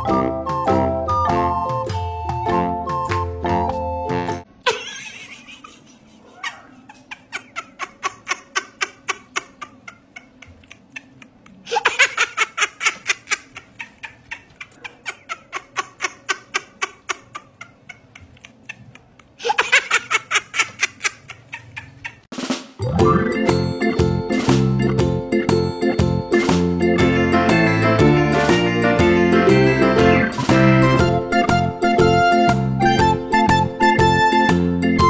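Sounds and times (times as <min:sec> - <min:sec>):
person laughing: 0:04.7 - 0:08.0.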